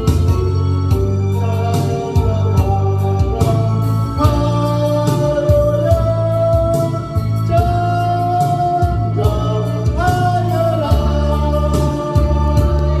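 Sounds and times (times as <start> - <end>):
bass and drum beat: 0.0 - 13.0
organ accompaniment: 0.0 - 13.0
person singing long notes: 0.0 - 13.0.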